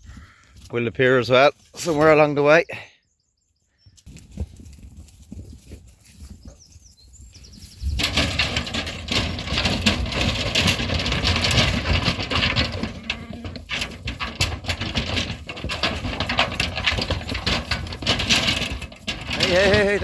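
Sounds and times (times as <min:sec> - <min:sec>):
lambs' hooves pattering and knocking: 0:04.0 - 0:20.0
quiet rustling: 0:04.0 - 0:20.0.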